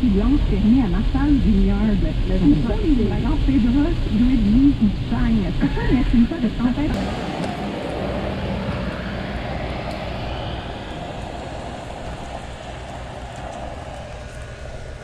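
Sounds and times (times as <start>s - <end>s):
vehicle driving rumble: 7.0s - 15.0s.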